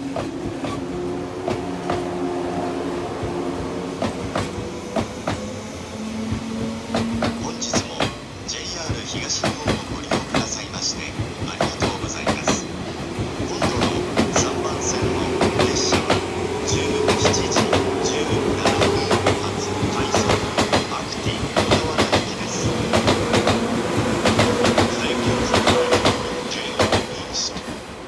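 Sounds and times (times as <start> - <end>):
electric train running hum: 0.0 - 28.0
train wheels clicking over rail joints: 8.8 - 27.8.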